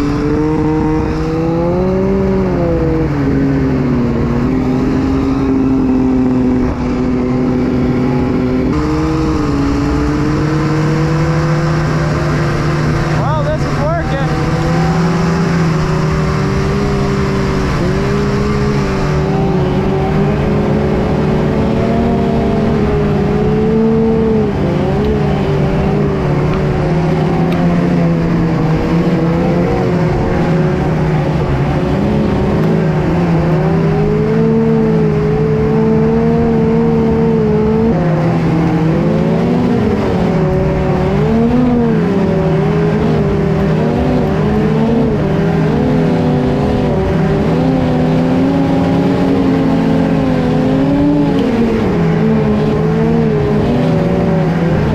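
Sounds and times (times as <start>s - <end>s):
snowmobile engine running hard: 0.0s - 54.9s.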